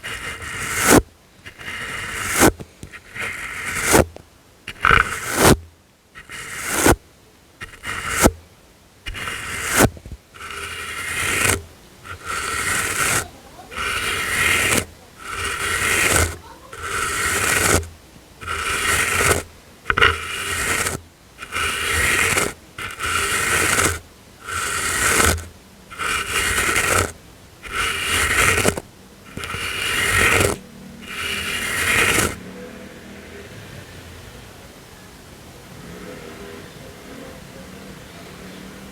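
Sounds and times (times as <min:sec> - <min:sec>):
brush swishing across microphone: 0:00.0 - 0:07.0, 0:07.6 - 0:08.4, 0:09.1 - 0:32.4.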